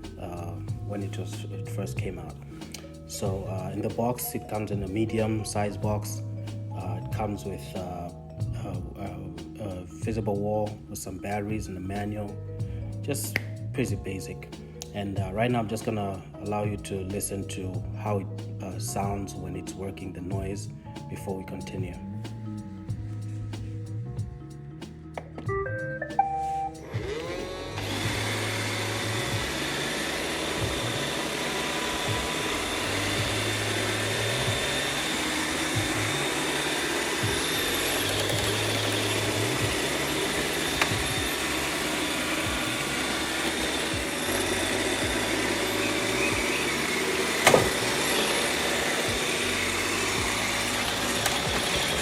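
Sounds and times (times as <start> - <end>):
robot vacuum whirring: 26.8 - 52.0.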